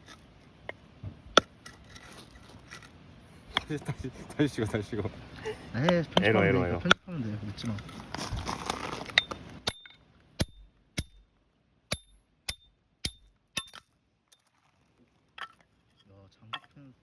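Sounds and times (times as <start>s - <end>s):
rustling: 1.5s - 3.0s, 7.2s - 10.4s
sharp metallic clinks: 11.9s - 14.4s.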